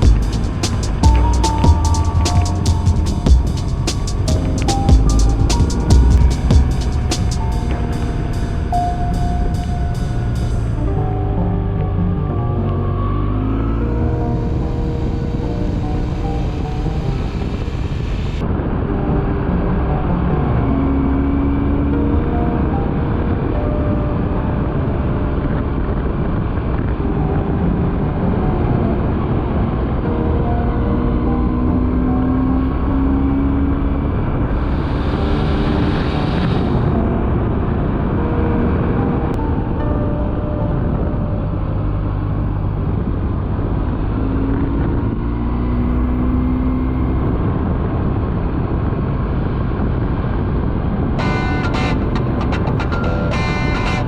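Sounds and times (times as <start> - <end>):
motorcycle engine drone: 0.0 - 19.2, 51.2 - 54.0
music: 0.0 - 42.6, 51.2 - 54.0
wind and road noise: 0.0 - 54.0.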